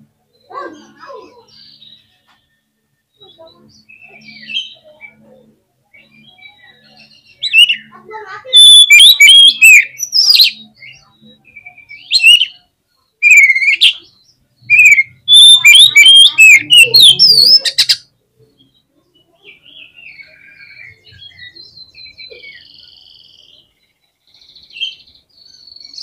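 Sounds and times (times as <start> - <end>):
bird singing whistled phrases: 5.9 - 18.1.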